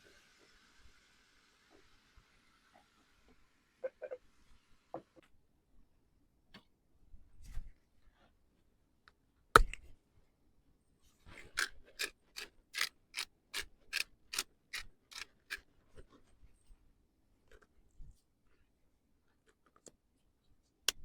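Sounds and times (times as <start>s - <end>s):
evenly spaced mechanical clicks: 12.0s - 12.9s, 13.9s - 15.3s.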